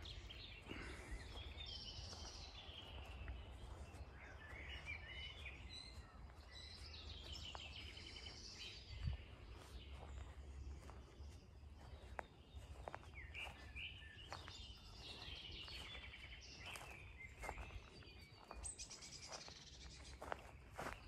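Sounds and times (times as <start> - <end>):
birds chirping and calling: 0.0 - 21.0
faint outdoor background: 0.0 - 21.0.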